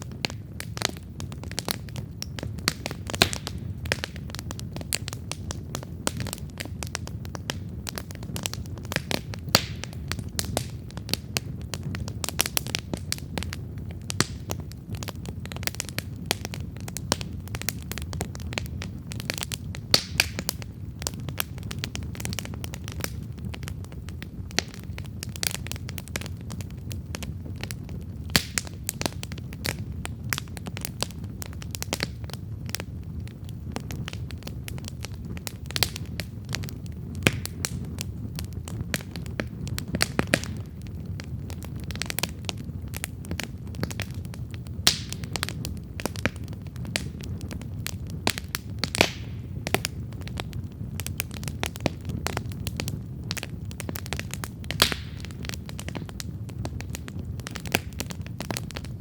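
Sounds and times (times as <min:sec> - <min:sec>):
campfire crackling and popping: 0:00.0 - 0:59.0
low rumble of flames: 0:00.0 - 0:59.0.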